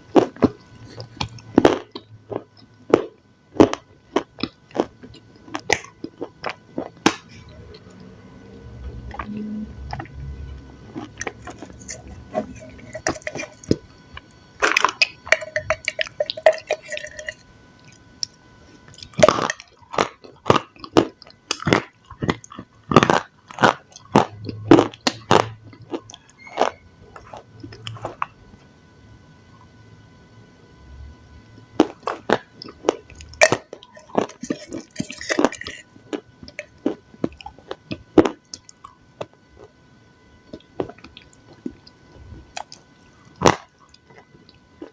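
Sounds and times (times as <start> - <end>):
chewing crunchy food: 0.0 - 28.7, 31.6 - 39.8, 40.4 - 44.9.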